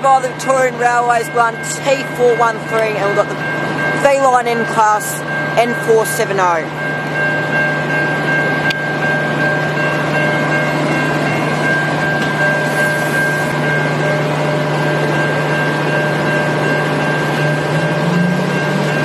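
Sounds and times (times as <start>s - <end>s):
diesel locomotive engine idling: 0.0s - 19.0s
high-pitched whine: 9.6s - 19.0s.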